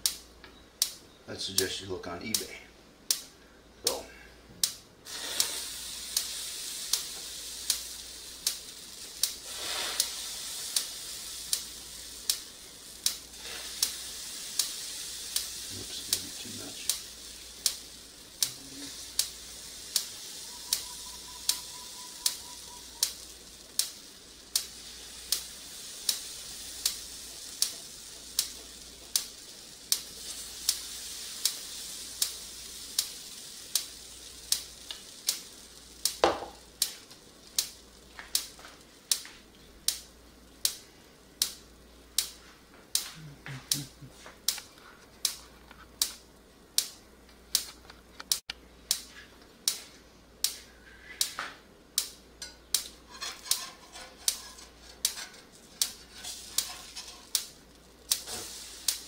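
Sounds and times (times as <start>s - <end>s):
sharp click: 0.0s - 1.0s, 3.1s - 3.3s, 46.8s - 49.1s
food sizzling in a pan: 5.0s - 42.4s, 52.1s - 59.0s.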